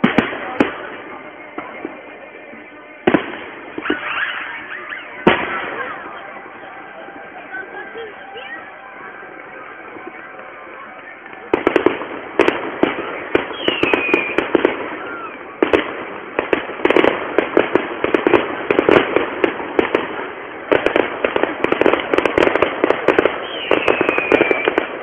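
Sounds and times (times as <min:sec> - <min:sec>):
fireworks crackling: 0:00.0 - 0:25.0
falling firework whistle: 0:03.0 - 0:09.2, 0:09.9 - 0:15.9, 0:22.2 - 0:25.0.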